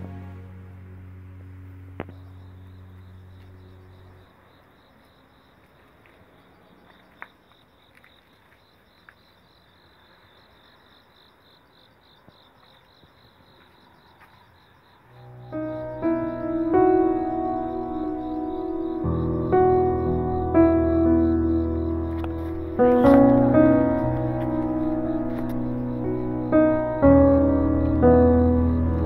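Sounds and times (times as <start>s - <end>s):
soft background music: 0.0s - 4.6s, 15.2s - 29.0s
insect trilling: 2.0s - 5.7s, 6.4s - 29.0s.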